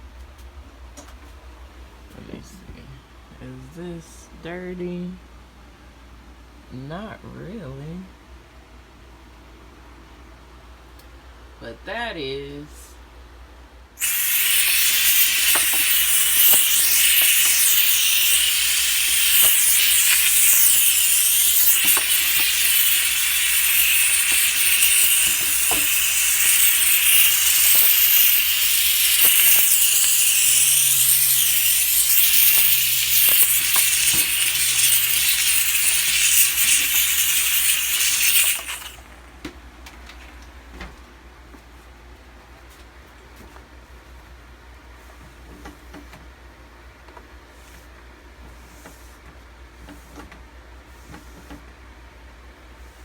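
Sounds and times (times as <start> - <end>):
steam cleaner hissing: 14.0 - 39.1.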